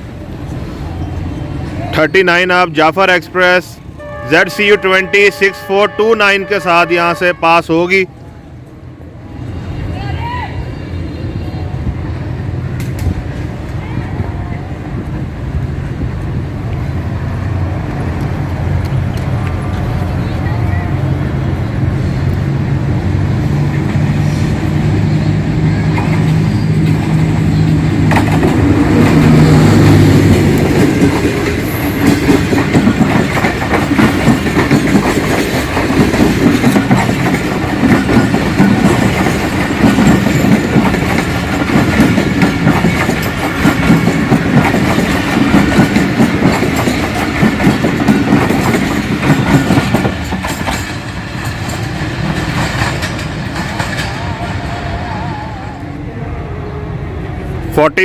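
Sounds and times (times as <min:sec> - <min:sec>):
locomotive engine: 0:14.6 - 0:58.0
train wheels clacking over rail joints: 0:25.8 - 0:54.7.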